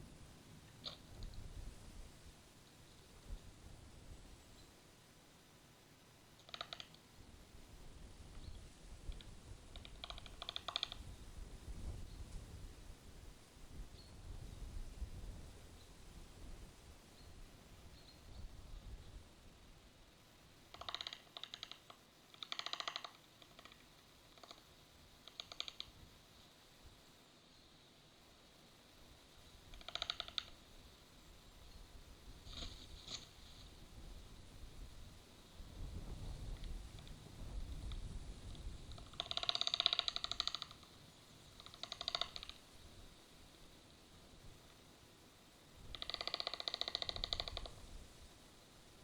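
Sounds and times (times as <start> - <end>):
bird clicking rattle: 6.4 - 7.0, 9.1 - 11.0, 20.7 - 24.6, 25.2 - 25.9, 29.7 - 30.6, 38.9 - 40.9, 41.6 - 42.6, 45.9 - 47.7
low wind rumble: 30.8 - 39.4
storks rattling creaky call: 39.1 - 40.8.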